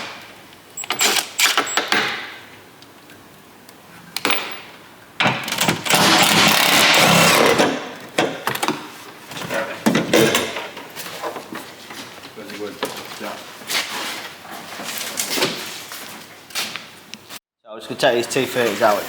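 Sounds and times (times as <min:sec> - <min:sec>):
tools clicking and knocking on parts: 0:04.2 - 0:11.6
handheld power tool running: 0:05.7 - 0:07.8.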